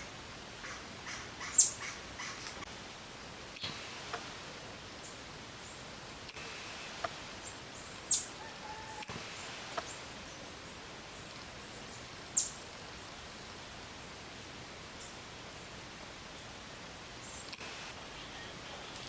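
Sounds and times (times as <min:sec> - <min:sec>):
high bird chirps: 0:00.0 - 0:02.4
outdoor background hiss: 0:00.0 - 0:19.0.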